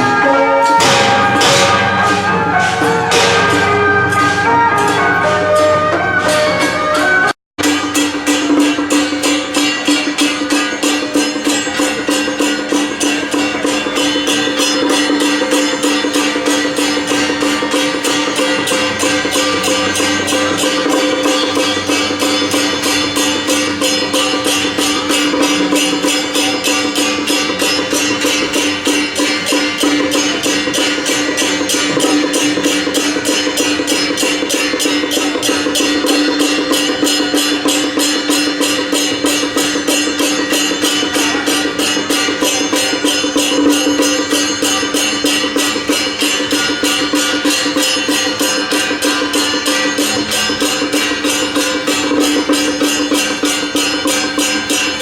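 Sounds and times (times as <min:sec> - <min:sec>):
held pitched tone: 0:00.0 - 0:08.3
fast percussion beat: 0:00.0 - 0:55.0.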